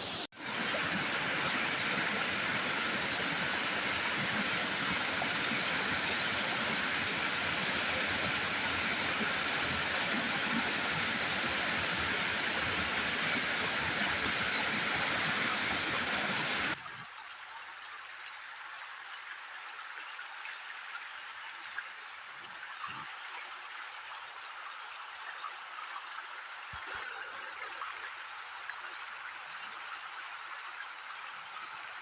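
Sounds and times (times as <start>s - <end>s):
rushing water: 0.0s - 17.4s
soft water sound: 0.0s - 32.0s.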